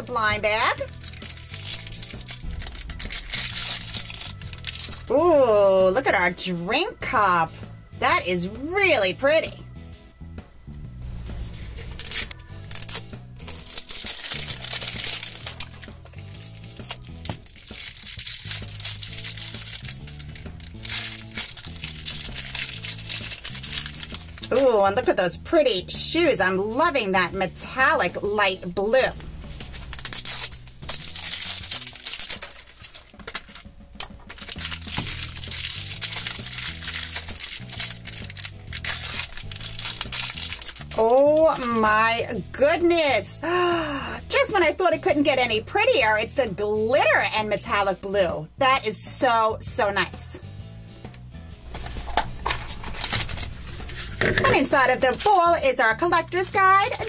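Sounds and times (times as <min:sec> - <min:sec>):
background music with bass line: 0:00.0 - 0:57.0
plastic wrapping crinkling and tearing: 0:00.1 - 0:05.3, 0:11.6 - 0:24.8, 0:29.6 - 0:41.8, 0:51.7 - 0:55.4, 0:56.2 - 0:57.0.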